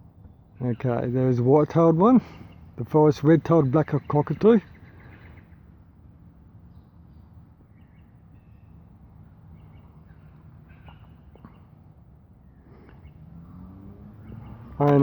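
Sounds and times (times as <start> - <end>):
faint bird chirps: 6.6 - 14.8.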